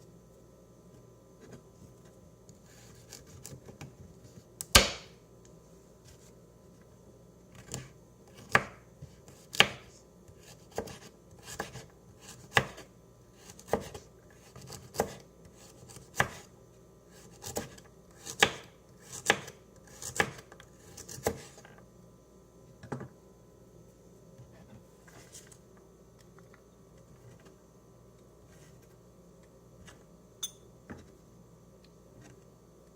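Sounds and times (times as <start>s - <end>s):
knife chopping food: 4.7s - 5.1s, 7.6s - 16.5s, 17.2s - 21.6s.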